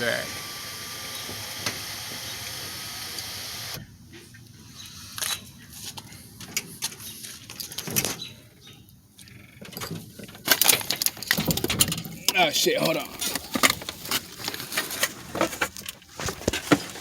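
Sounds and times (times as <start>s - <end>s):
sunroof motor whirring: 0.0s - 3.9s.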